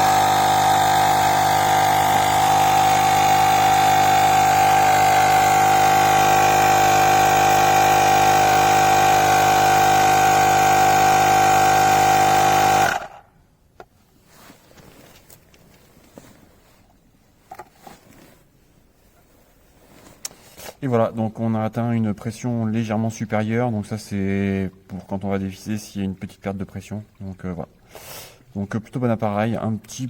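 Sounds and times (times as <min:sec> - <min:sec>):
small compressor buzzing hum: 0:00.0 - 0:13.4.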